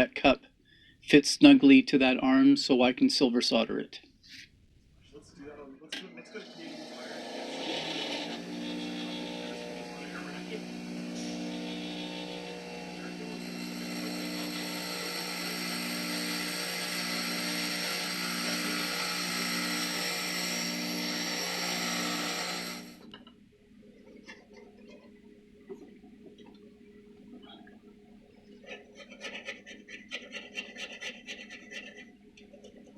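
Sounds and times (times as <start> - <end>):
grinding tool whining: 6.3 - 23.1.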